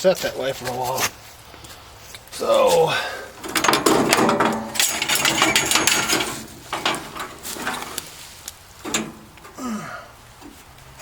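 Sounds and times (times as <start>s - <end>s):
metal clattering and rattling: 3.3s - 11.0s
clicks and knocks: 3.4s - 9.6s.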